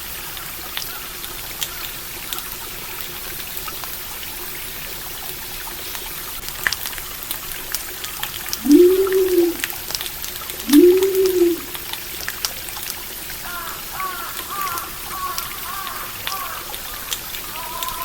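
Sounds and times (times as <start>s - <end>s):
stream water trickling: 0.0s - 18.0s
low hooting calls: 8.6s - 9.8s, 10.6s - 11.8s.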